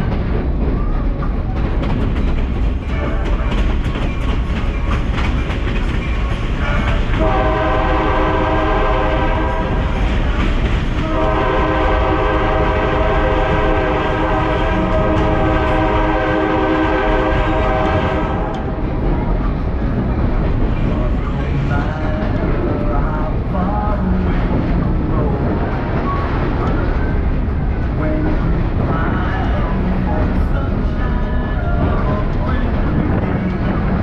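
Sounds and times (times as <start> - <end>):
moving train rumble and clatter: 0.0 - 34.0
train horn blasts: 6.7 - 10.0, 11.0 - 18.8.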